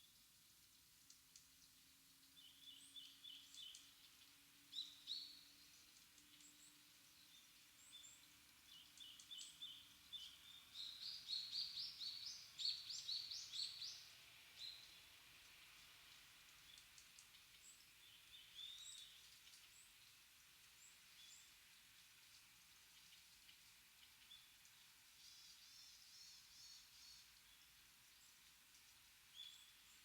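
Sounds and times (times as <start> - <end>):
small birds chirping: 1.1 - 15.1, 15.7 - 30.0.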